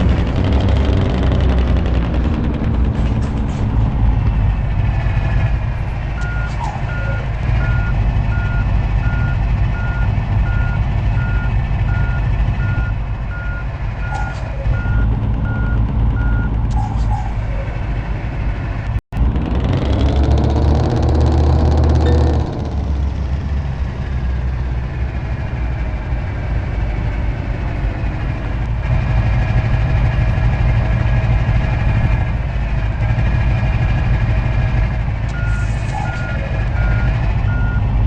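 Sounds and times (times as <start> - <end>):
truck engine rumble: 0.0 - 38.0
truck reversing alarm beeping: 6.1 - 16.9, 35.3 - 38.0.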